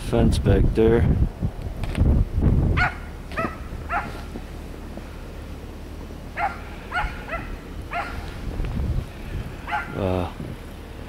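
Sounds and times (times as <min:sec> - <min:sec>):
dog barking: 0:02.8 - 0:04.2, 0:06.4 - 0:08.2, 0:09.7 - 0:10.0.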